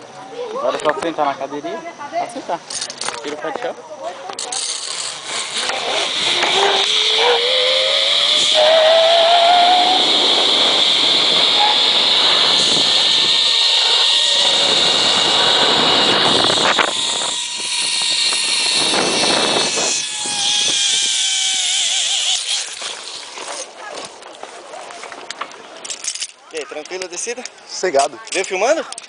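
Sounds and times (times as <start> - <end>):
pulleys whining along cable: 4.3 - 23.8
wind on microphone: 5.2 - 22.7.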